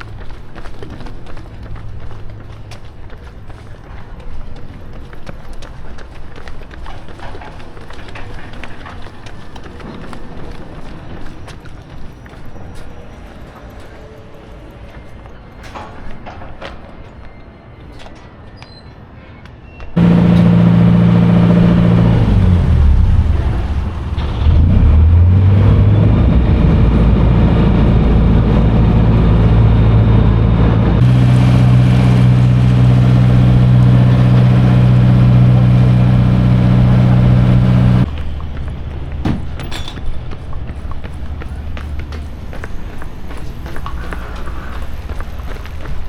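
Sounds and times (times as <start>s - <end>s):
large engine running loudly: 20.0s - 38.1s.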